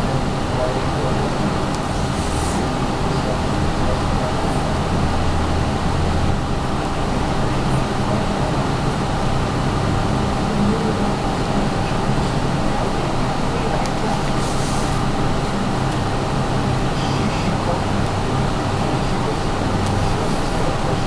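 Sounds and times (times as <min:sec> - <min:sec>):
low hum: 0:00.0 - 0:21.0
steady background rumble: 0:00.0 - 0:21.0.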